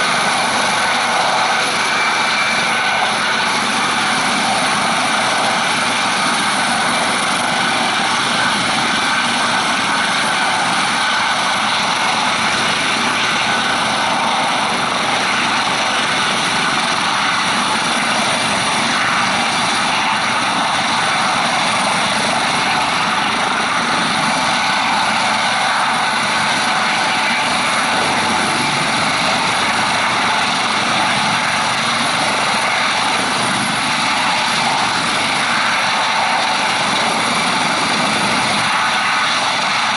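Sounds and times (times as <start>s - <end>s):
helicopter rotor noise: 0.0s - 39.9s
helicopter turbine whine: 0.0s - 39.9s.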